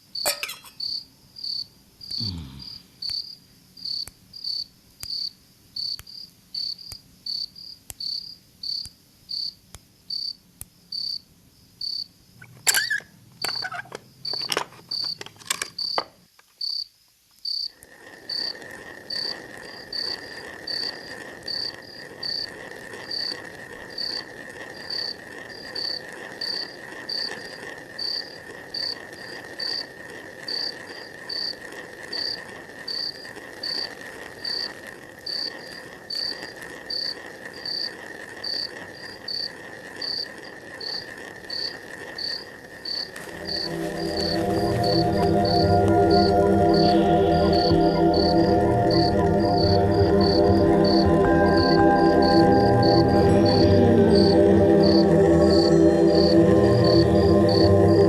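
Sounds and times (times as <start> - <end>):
cricket chirping: 0.0 - 58.0
irregular chirps and clicks: 12.4 - 56.4
high-pitched insect drone: 17.9 - 58.0.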